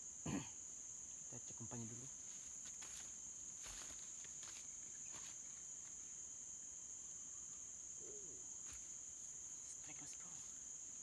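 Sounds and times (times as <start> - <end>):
insects shrilling: 1.4 - 6.4, 8.0 - 11.0
faint taps and rustles: 2.3 - 6.0.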